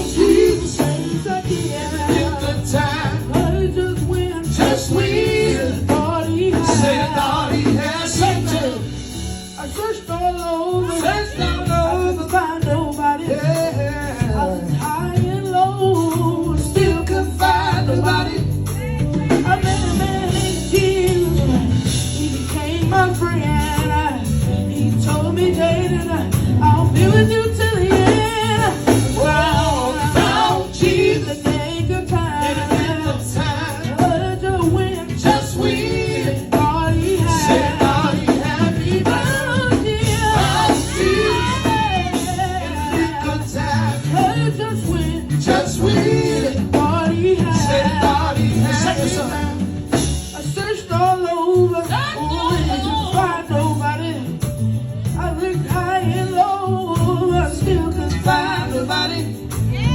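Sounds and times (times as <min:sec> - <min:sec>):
band accompaniment: 0:00.0 - 0:59.9
gospel singing voices: 0:00.0 - 0:59.9
tambourine keeping time: 0:00.0 - 0:59.9.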